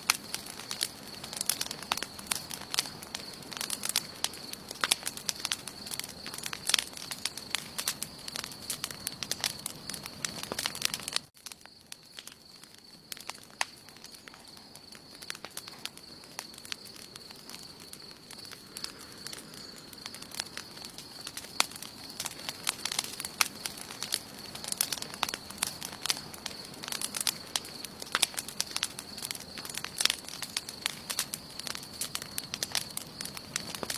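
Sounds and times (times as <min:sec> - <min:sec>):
campfire crackling and popping: 0:00.0 - 0:33.9.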